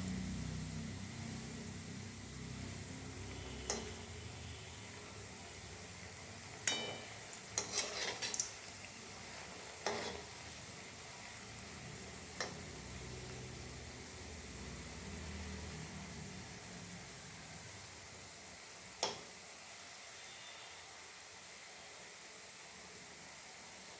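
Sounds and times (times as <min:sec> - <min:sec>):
sizzling hiss from pot: 0:00.0 - 0:23.9
metal spoon clinking against pot: 0:06.6 - 0:08.5.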